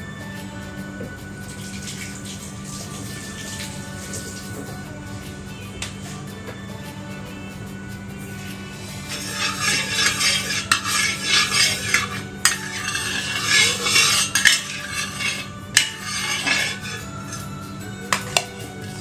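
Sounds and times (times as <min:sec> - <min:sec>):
metal spatula scraping a pan: 0:08.7 - 0:19.0.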